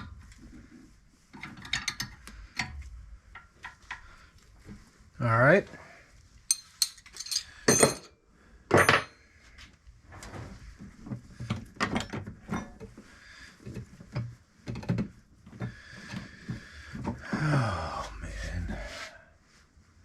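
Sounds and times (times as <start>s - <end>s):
hand tools and metal parts clanking: 1.3s - 4.1s, 6.5s - 8.1s, 8.7s - 9.2s, 11.5s - 13.0s.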